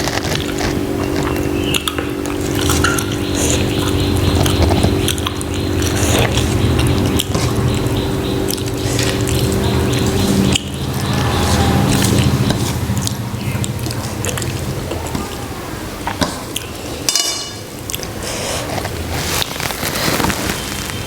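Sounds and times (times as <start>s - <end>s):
wet chewing and smacking: 0.0s - 15.4s, 16.0s - 17.1s, 17.7s - 21.0s
steady low hum: 0.0s - 20.0s.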